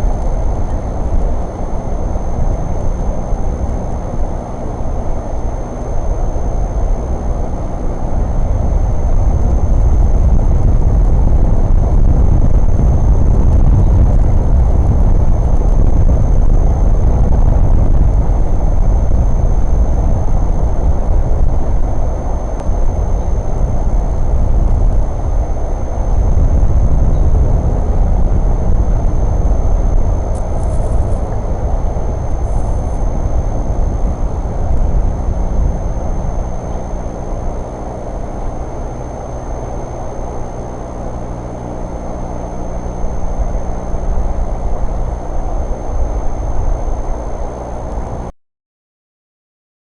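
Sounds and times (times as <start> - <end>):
engine hum: 0.0 - 48.3
vehicle rumble: 8.5 - 39.4.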